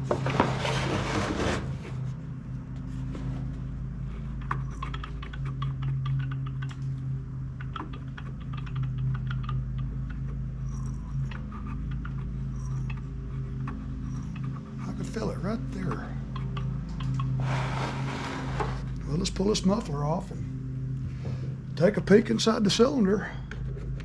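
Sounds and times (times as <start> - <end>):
steady low hum: 0.0 - 24.0
small engine clicks and ticks: 4.2 - 17.4.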